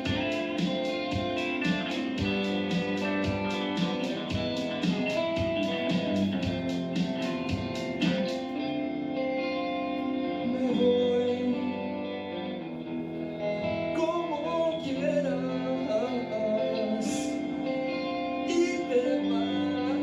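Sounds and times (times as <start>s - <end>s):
live rock band music: 0.0s - 11.5s
guitar strumming: 0.0s - 20.0s
ringing guitar chords: 0.0s - 20.0s.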